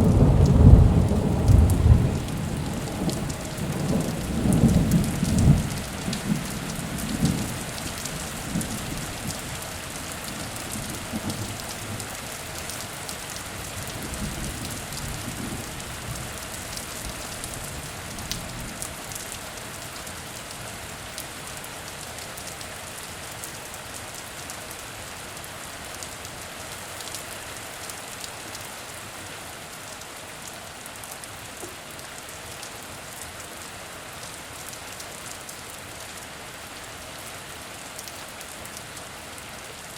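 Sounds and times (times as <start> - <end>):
thunder rumble: 0.0 - 7.6
heavy rain falling: 0.0 - 39.9.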